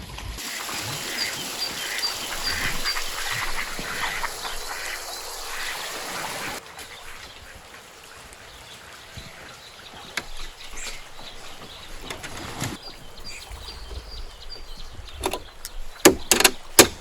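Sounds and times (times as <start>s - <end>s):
birds calling: 0.4s - 17.0s
high bird chirps: 0.7s - 7.5s.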